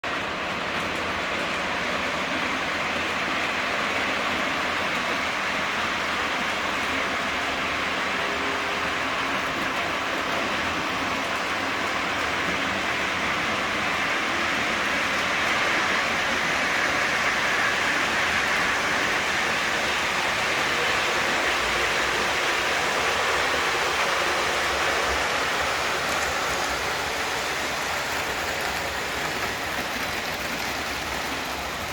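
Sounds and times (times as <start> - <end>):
model trains rumbling on track: 0.0 - 31.9.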